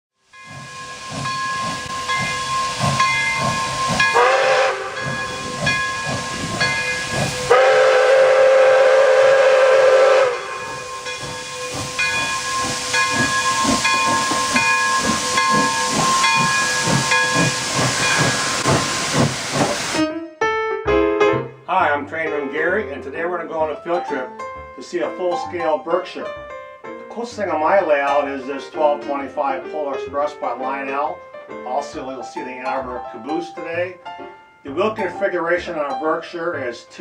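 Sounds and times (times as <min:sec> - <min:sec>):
steam locomotive exhaust chuffs: 0:00.2 - 0:20.0
hissing steam: 0:00.3 - 0:20.0.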